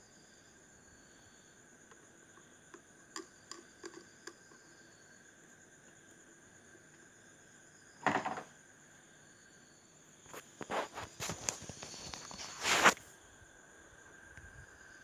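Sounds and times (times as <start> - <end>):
rustling scrape: 10.3 - 13.1
handling clicks and scrapes: 10.4 - 13.0.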